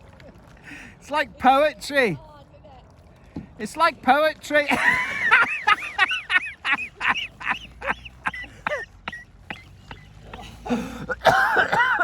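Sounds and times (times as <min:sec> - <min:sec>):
waterfowl honking: 0:07.1 - 0:10.6.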